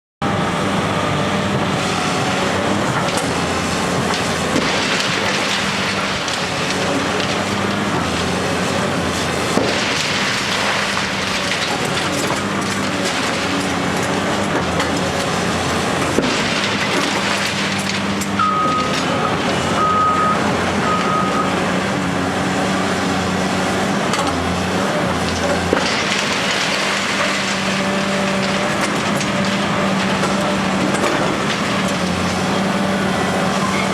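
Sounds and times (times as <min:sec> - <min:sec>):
diesel engine running: 0:00.2 - 0:33.9
concrete being struck and broken: 0:09.4 - 0:19.3
short high beeps: 0:19.8 - 0:21.5.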